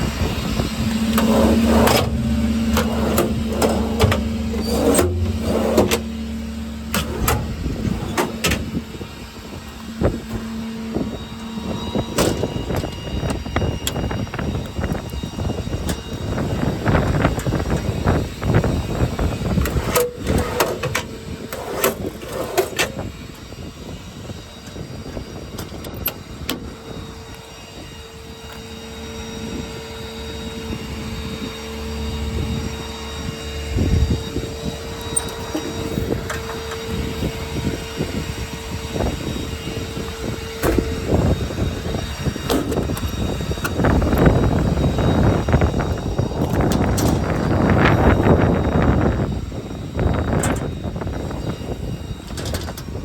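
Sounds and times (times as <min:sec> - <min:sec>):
diesel engine idling: 0:00.0 - 0:19.6
steady whine: 0:00.0 - 0:53.0
wind buffeting microphone: 0:00.0 - 0:53.0.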